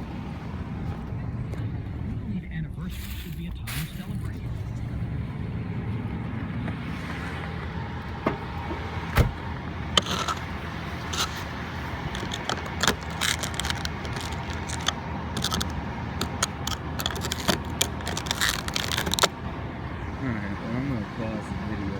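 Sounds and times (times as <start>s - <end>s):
car engine idling: 0.0s - 21.9s
sharp clicks and scraping knocks: 7.6s - 19.5s.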